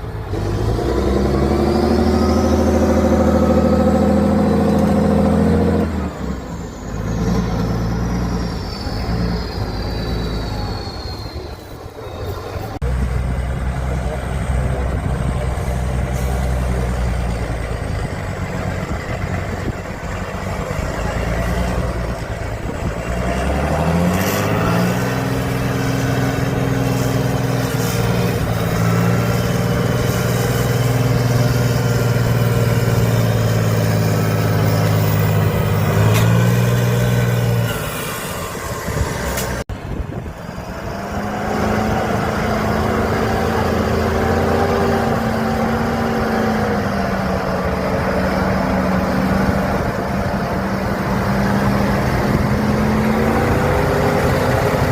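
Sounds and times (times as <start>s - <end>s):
truck engine revving: 0.0s - 54.9s
engine running steadily: 11.9s - 54.9s.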